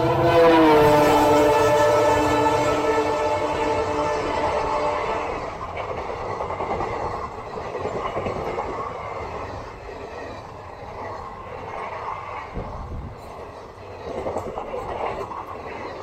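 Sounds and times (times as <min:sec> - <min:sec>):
train horn: 0:00.0 - 0:05.6
train coaches rushing past: 0:00.0 - 0:16.0
wheels clacking on rail joints: 0:05.2 - 0:16.0.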